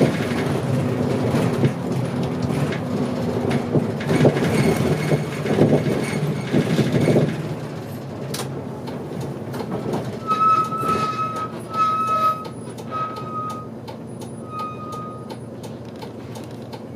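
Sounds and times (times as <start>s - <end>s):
bus engine rumble: 0.0s - 16.9s
short electronic beeps: 10.4s - 13.7s.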